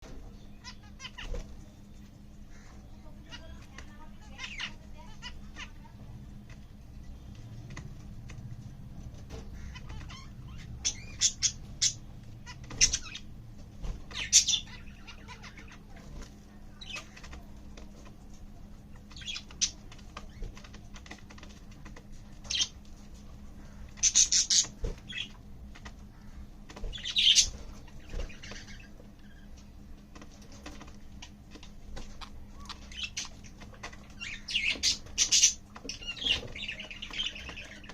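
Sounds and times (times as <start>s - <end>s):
faint steady hum: 0.0s - 37.9s
budgerigar chirping: 9.6s - 13.3s, 14.1s - 15.8s, 24.0s - 25.3s, 32.1s - 33.5s, 34.1s - 37.8s.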